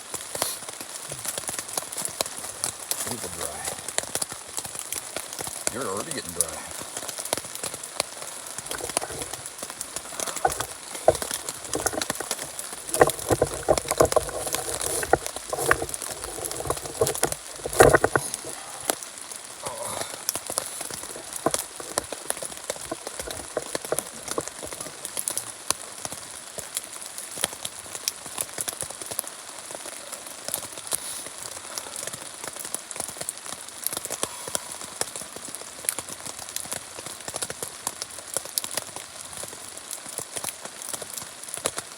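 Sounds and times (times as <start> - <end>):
rain on tent fabric: 0.0 - 41.9
knocks and rustling of movement: 6.6 - 19.1, 19.7 - 25.4.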